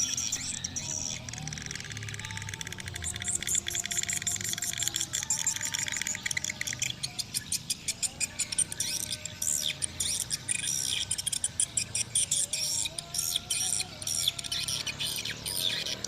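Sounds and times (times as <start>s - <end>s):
swiftlets twittering: 0.0s - 16.0s.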